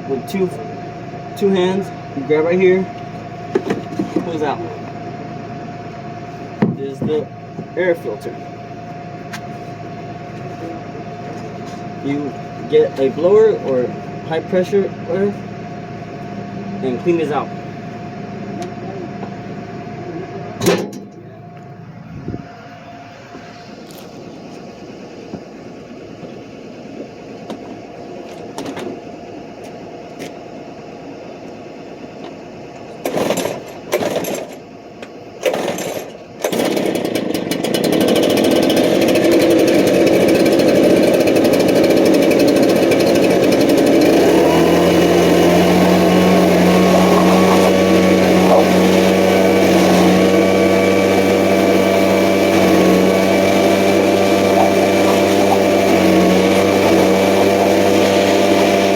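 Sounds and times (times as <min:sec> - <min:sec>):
pull-start cord tugs: 0:35.4 - 0:40.6, 0:41.2 - 0:58.9
leaf blower running: 0:35.4 - 0:58.9.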